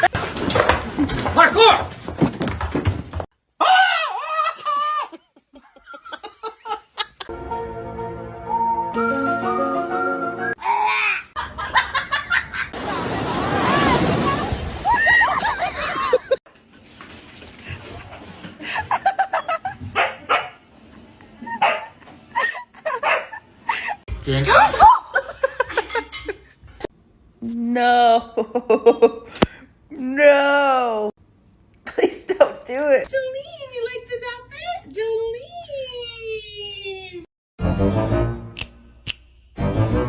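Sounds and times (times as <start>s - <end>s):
music with held notes: 7.3s - 10.6s
dog barking: 20.0s - 20.6s, 21.6s - 22.0s, 23.0s - 23.4s.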